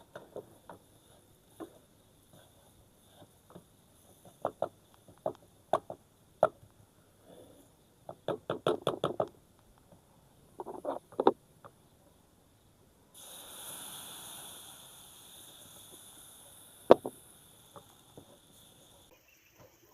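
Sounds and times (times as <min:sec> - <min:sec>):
sharp knocks and taps: 0:08.1 - 0:10.0.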